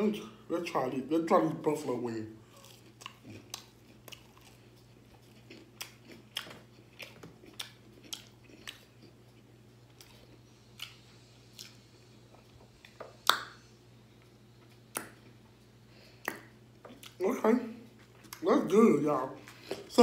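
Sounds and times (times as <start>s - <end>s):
chewing with mouth smacks: 2.4s - 17.2s, 17.9s - 18.5s.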